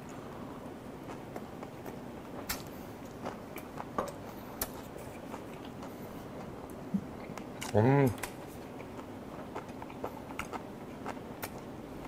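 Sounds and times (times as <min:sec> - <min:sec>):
person chewing with wet clicks: 0:01.0 - 0:11.7.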